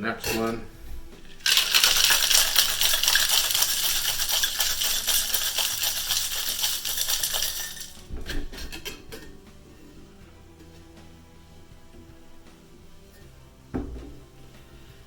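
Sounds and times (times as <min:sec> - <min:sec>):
ice rattling in cocktail shaker: 0:01.2 - 0:09.3.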